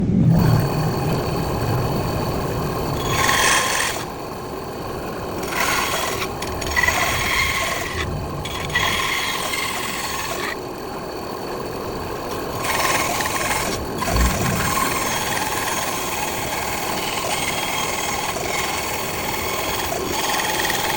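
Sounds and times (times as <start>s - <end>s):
bandsaw humming: 2.9s - 4.2s, 5.1s - 10.6s, 12.4s - 20.9s
bandsaw blade cutting wood: 3.0s - 4.1s, 5.4s - 10.6s, 12.6s - 20.9s.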